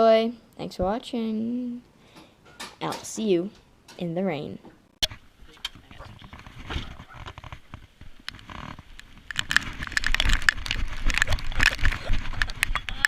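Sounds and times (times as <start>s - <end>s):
rain clicking on camera: 5.0s - 13.0s.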